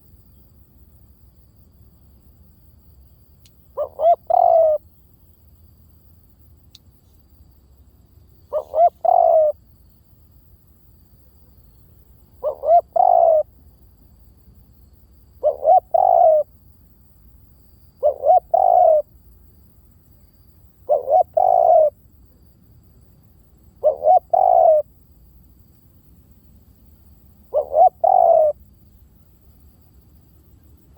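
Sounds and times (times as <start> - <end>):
dove cooing: 3.8 - 4.8, 8.5 - 9.6, 12.4 - 13.5, 15.4 - 16.5, 18.0 - 19.1, 20.8 - 22.0, 23.8 - 24.9, 27.4 - 28.6.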